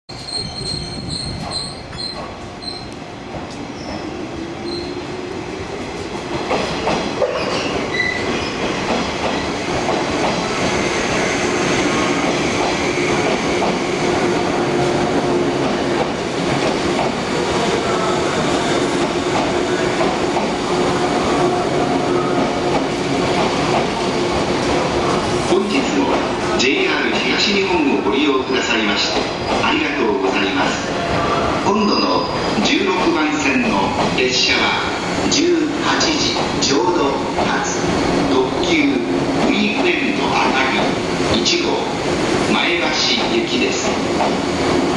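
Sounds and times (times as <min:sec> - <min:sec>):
train wheels squealing: 0:00.1 - 0:02.9, 0:03.8 - 0:05.0, 0:07.3 - 0:08.6
train rolling noise: 0:00.1 - 0:44.9.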